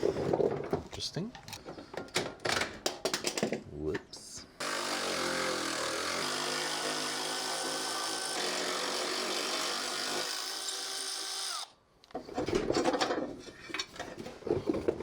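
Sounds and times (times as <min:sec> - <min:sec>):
rustling and clatter of handling: 0:00.1 - 0:03.6, 0:12.1 - 0:15.0
power tool motor whirring: 0:04.6 - 0:11.7.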